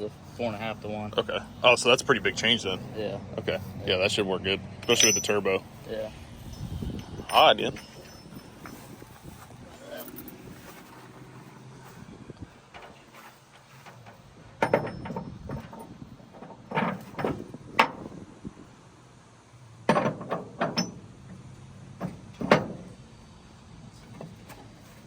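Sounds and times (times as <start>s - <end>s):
metallic clanks and knocks: 4.8s - 5.6s, 12.7s - 18.1s, 19.8s - 23.0s.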